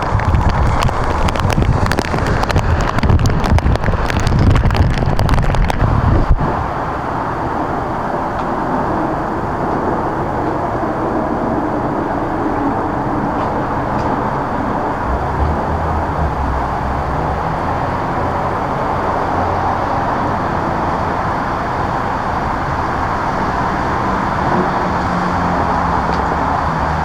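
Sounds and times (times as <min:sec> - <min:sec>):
low engine hum: 0:00.0 - 0:27.0
road vehicle rushing: 0:00.0 - 0:27.0.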